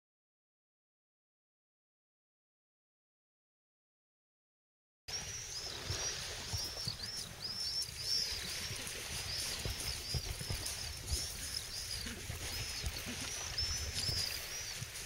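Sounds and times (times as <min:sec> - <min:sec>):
small birds chirping: 0:05.1 - 0:15.0.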